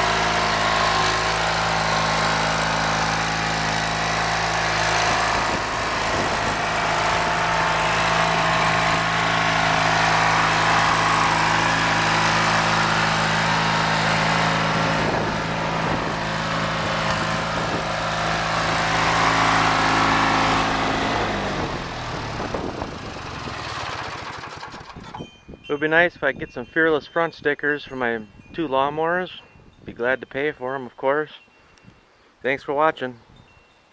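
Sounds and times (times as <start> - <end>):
tractor engine running: 0.0 - 25.4.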